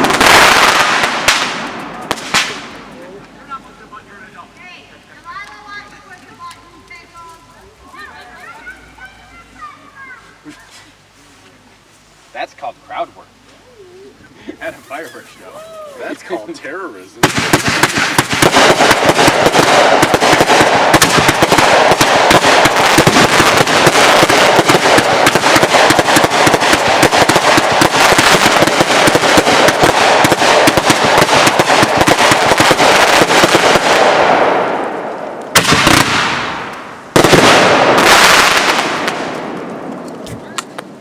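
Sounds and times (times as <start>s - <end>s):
loud firework blasts: 0.0s - 4.5s, 14.5s - 16.4s, 17.1s - 41.0s
fireworks crackling bangs: 0.0s - 10.2s, 14.5s - 41.0s.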